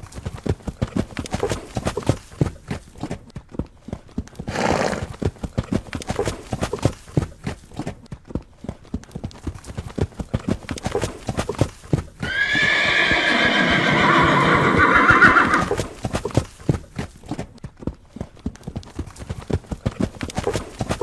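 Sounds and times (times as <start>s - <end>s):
horse hooves clip-clopping: 0.0s - 21.0s
horse whinnying: 4.5s - 5.1s, 12.2s - 15.9s.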